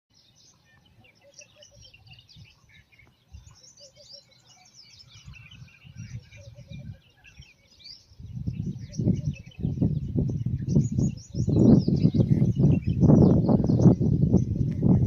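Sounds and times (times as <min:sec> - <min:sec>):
birds chirping in chorus: 0:00.1 - 0:15.0
wind on microphone rumbling: 0:04.9 - 0:15.0.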